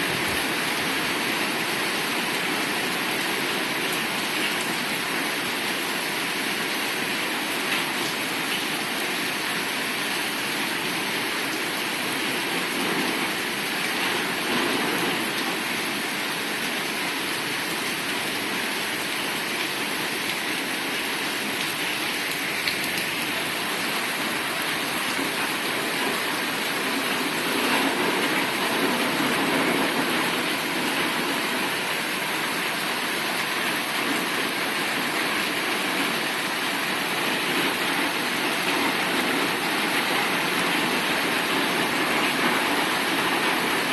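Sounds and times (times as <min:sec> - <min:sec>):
heavy rain falling: 0:00.0 - 0:43.9.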